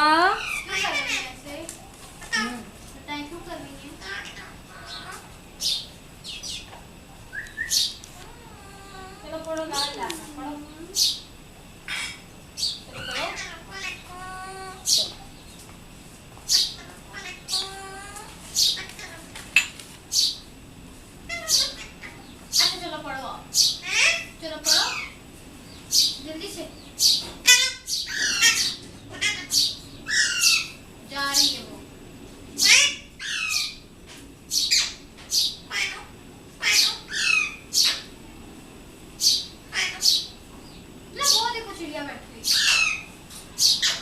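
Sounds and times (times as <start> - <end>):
parakeet voice-like call: 0.0 - 1.4, 3.8 - 6.6, 11.9 - 15.1, 16.5 - 19.3, 21.3 - 22.9, 23.5 - 25.2, 26.8 - 31.7, 32.6 - 33.8, 34.5 - 38.1, 39.2 - 40.4, 42.4 - 44.0
parakeet squawking: 0.0 - 1.5, 2.2 - 2.7, 3.8 - 6.7, 7.3 - 10.0, 11.0 - 15.1, 16.5 - 19.3, 21.3 - 25.2, 25.9 - 31.7, 32.6 - 33.8, 34.5 - 38.1, 39.2 - 40.4, 41.2 - 41.7, 42.4 - 44.0.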